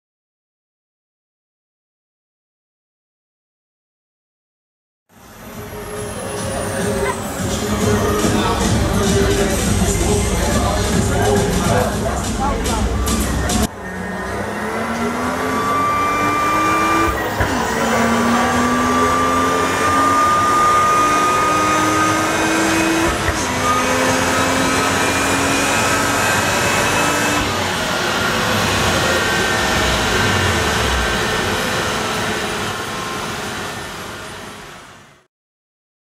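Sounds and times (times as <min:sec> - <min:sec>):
high supercharger whine: 0:05.1 - 0:35.3
car engine pulling hard: 0:05.2 - 0:35.2.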